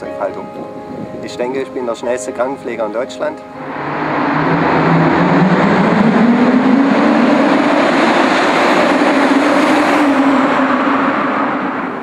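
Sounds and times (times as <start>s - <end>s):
loud exhaust and rushing noise: 3.4s - 12.0s
car engine accelerating: 3.6s - 12.0s.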